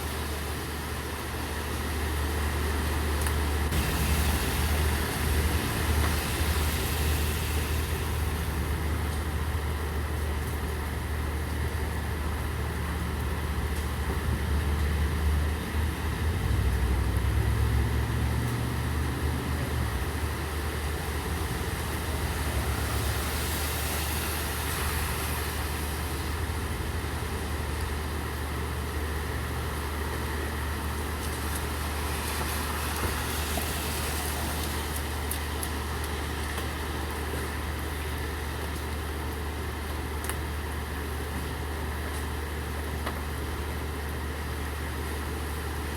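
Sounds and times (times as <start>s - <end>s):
rain on a street: 0.0s - 45.9s
vehicle engine rumble: 0.0s - 45.9s.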